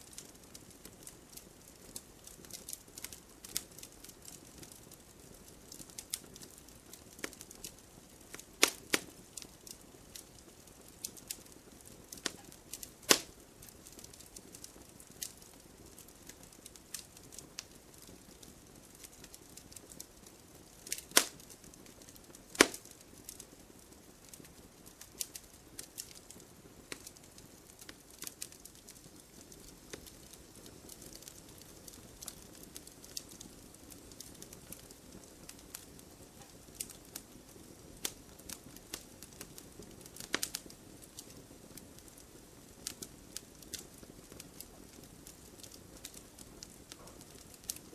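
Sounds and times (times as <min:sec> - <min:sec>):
bonfire crackling and popping: 0:00.0 - 0:47.9.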